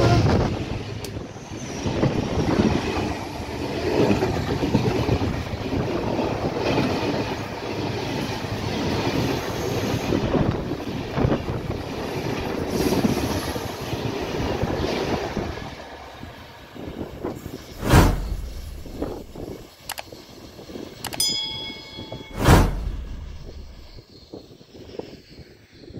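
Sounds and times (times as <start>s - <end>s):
loud thump: 17.8s - 19.4s, 22.3s - 24.0s.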